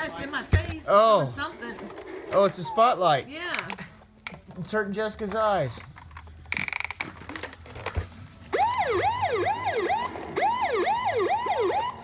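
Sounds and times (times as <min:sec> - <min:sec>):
toy fire truck electronic siren: 0:08.6 - 0:12.0.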